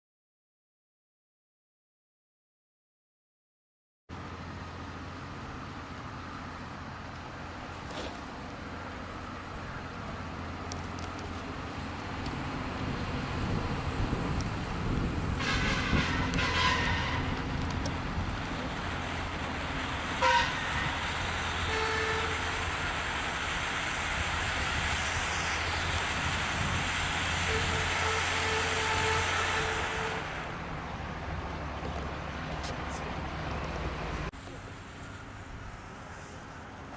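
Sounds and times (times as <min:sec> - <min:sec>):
distant traffic rumble: 0:04.1 - 0:36.9
firework fountain hissing: 0:18.1 - 0:30.9.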